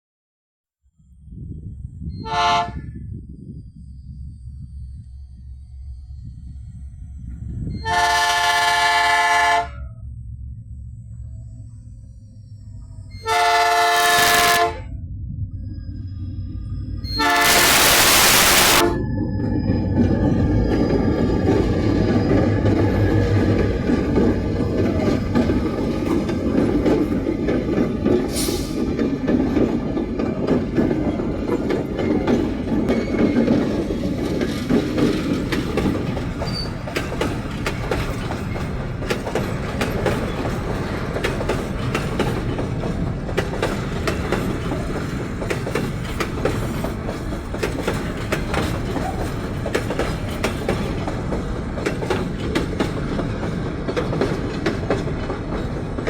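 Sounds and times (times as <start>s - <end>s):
freight train rumbling past: 1.2s - 56.0s
wheels clacking over rail joints: 20.0s - 56.0s.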